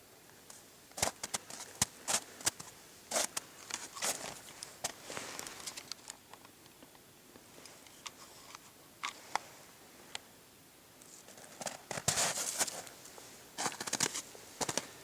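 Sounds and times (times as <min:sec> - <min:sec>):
irregular crunches and clicks: 0:11.3 - 0:14.9.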